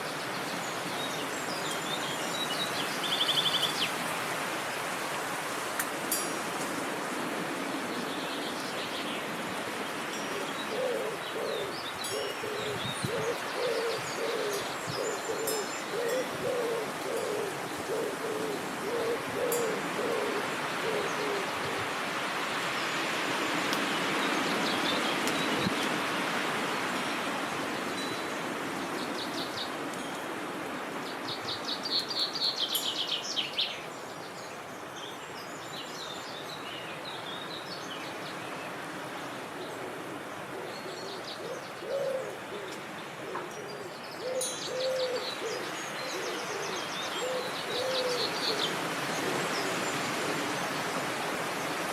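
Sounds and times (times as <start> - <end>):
wind: 0.0 - 51.9
bird hooting low notes: 40.5 - 48.6.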